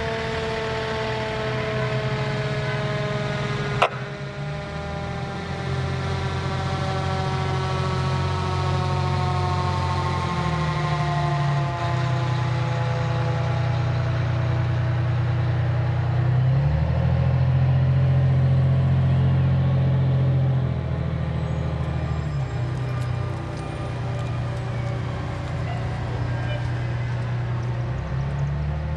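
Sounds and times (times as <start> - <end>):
loud low horn tones: 1.6 - 8.2, 21.3 - 28.9
mechanical siren winding down: 21.2 - 28.9.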